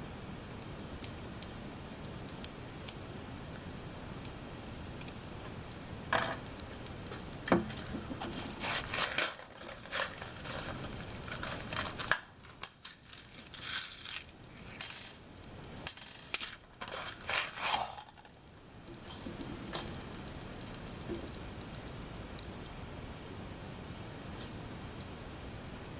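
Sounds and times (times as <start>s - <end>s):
small plastic parts clicking and knocking: 6.1s - 21.8s.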